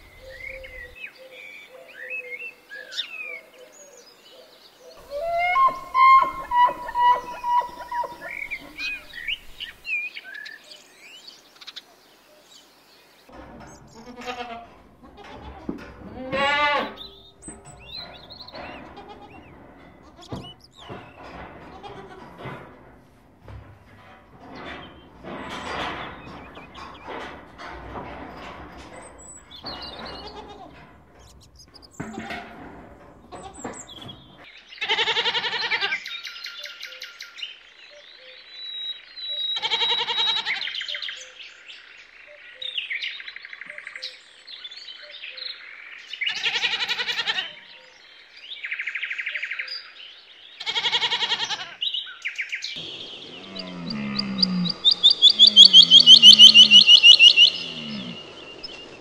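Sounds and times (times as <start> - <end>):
high-pitched pulsing call: 5.1 - 8.7, 53.9 - 58.2
goats bleating: 14.0 - 17.0, 34.8 - 36.0, 50.6 - 51.8
low grunt-like notes: 52.8 - 59.0.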